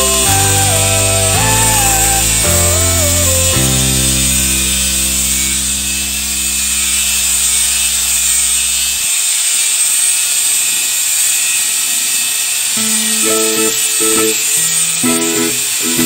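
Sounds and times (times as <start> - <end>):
background music: 0.0 - 6.9
power tool hissing on steel: 0.0 - 16.0.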